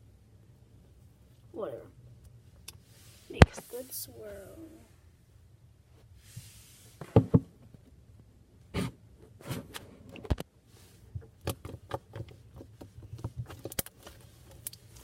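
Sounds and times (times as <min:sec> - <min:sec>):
slime squishing with wet pops: 0:11.1 - 0:15.0.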